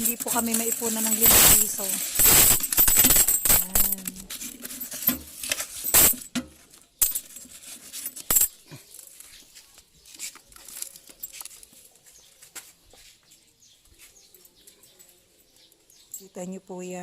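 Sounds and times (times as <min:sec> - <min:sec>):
coins clinking: 0:00.0 - 0:06.4, 0:07.0 - 0:09.1.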